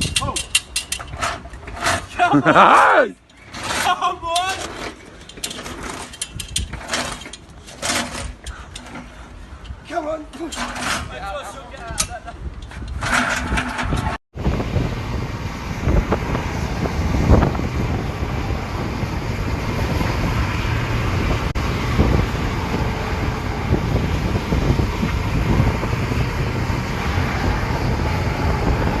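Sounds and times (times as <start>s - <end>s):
wind noise on microphone: 0.0s - 2.6s, 3.4s - 29.0s
low vehicle rumble: 12.2s - 29.0s.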